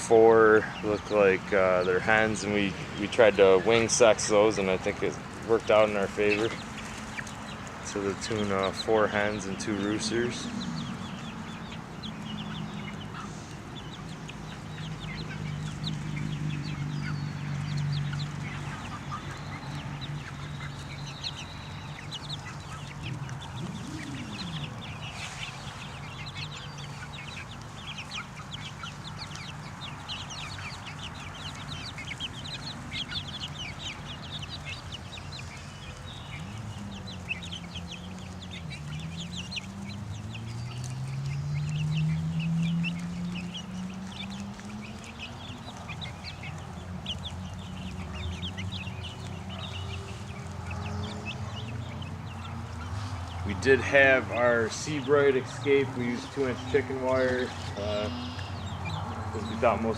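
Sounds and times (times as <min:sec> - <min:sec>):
young chickens peeping and clucking: 0:00.0 - 0:59.9.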